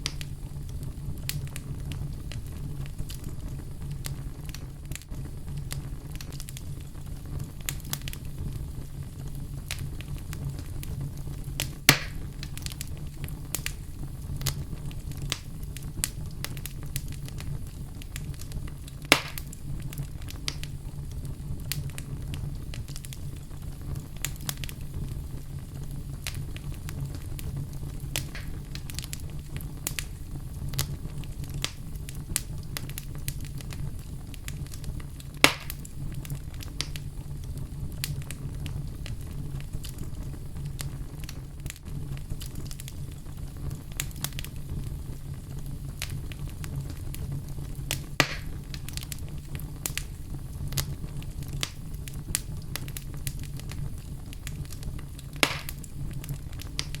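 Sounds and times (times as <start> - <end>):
fire crackling: 0.0 - 57.0
fire flames rumbling: 0.0 - 57.0
loud sharp wood pops: 11.9 - 12.2, 19.1 - 19.4, 35.4 - 35.8, 48.2 - 48.6, 55.4 - 55.8.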